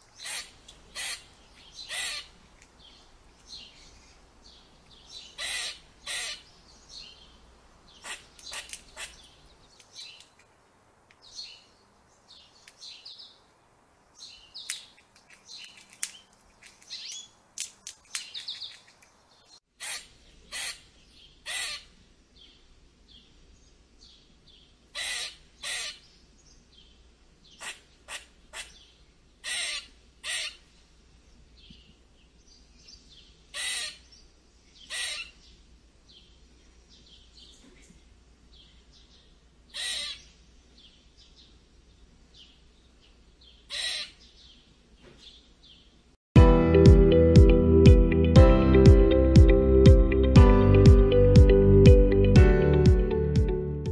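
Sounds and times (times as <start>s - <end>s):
squirrel barks and chatters: 0.2s - 2.4s, 5.2s - 6.5s, 8.0s - 10.3s, 19.8s - 22.0s, 24.9s - 26.0s, 27.5s - 30.6s, 33.5s - 34.1s, 34.8s - 35.5s, 39.7s - 40.3s, 43.6s - 44.3s.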